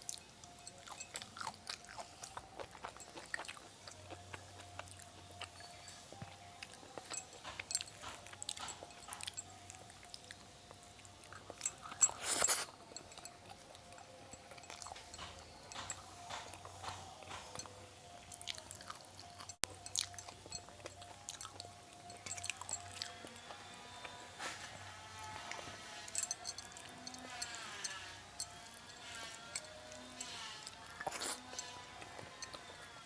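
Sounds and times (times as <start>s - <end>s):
chewing and mouth sounds: 0.0s - 33.0s.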